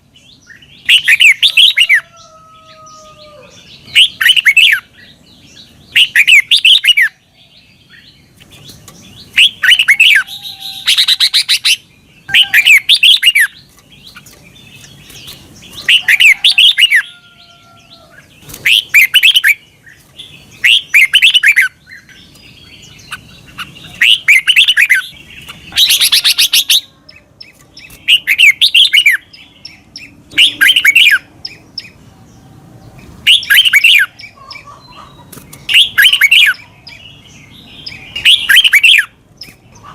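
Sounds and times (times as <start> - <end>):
bird singing warbling phrases: 0.0 - 39.9.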